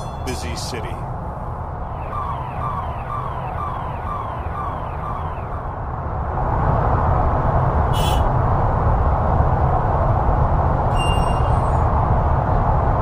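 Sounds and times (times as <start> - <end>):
rumble of passing vehicles: 0.0 - 13.0
brief high-pitched squeal: 10.9 - 11.9.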